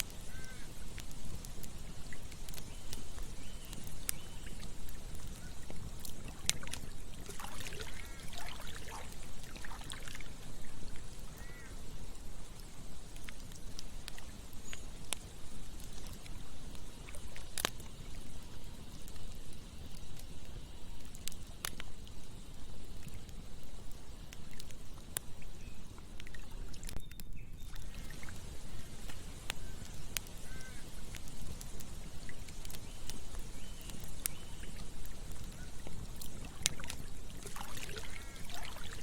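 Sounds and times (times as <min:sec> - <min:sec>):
campfire crackling and popping: 0:00.0 - 0:39.0
short animal calls: 0:00.3 - 0:00.7, 0:30.4 - 0:30.9
stream water rushing: 0:06.2 - 0:10.6, 0:36.4 - 0:39.0.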